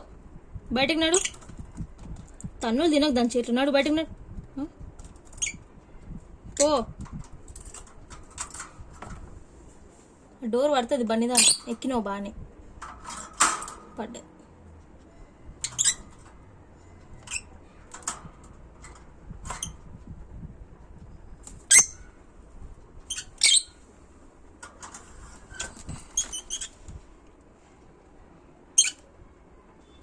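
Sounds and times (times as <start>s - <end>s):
cage birds chirping and squawking: 5.0s - 5.7s, 11.3s - 12.0s, 15.5s - 20.0s, 21.4s - 22.2s, 23.0s - 24.0s, 24.8s - 27.0s, 28.7s - 29.1s.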